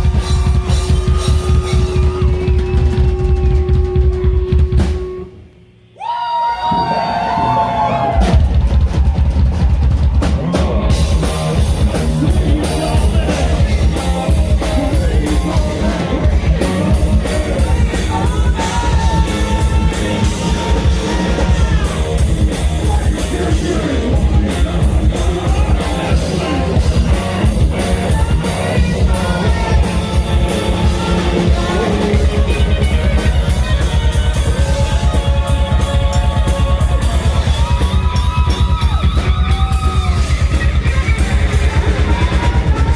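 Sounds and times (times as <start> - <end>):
fast driving drum kit: 0.0 - 5.4, 6.7 - 42.9
heavy rock band playing: 0.0 - 5.5, 6.7 - 42.9
heavy bass: 0.0 - 5.6, 6.7 - 42.9
person singing or screaming: 10.4 - 42.9
distorted electric guitar: 10.7 - 42.9.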